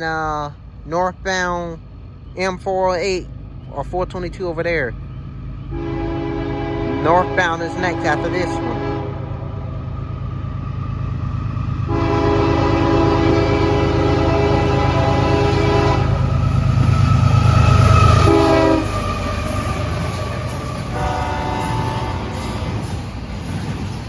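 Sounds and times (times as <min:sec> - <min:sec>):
locomotive engine rumble: 0:00.0 - 0:24.0
locomotive horn blasts: 0:05.7 - 0:09.6, 0:11.8 - 0:22.8.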